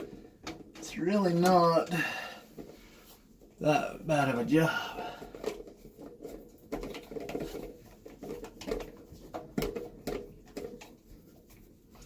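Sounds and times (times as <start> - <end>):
parts knocking and clicking: 0.0 - 1.6, 5.1 - 12.0.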